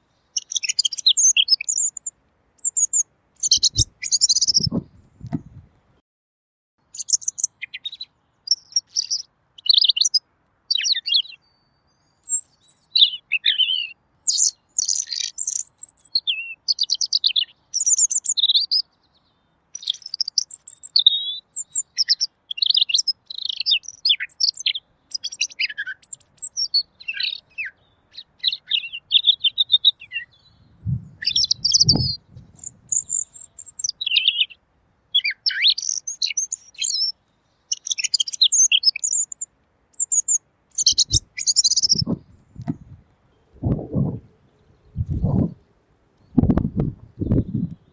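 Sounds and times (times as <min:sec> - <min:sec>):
bird singing chirps and warbles: 0:00.0 - 0:05.6, 0:06.8 - 0:47.9
low thump: 0:46.4 - 0:47.7.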